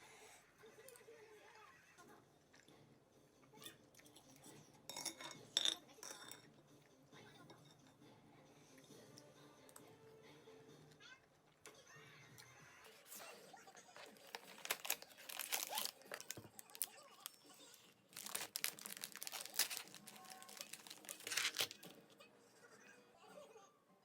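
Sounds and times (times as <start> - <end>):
crinkling and rustling: 12.9 - 22.0.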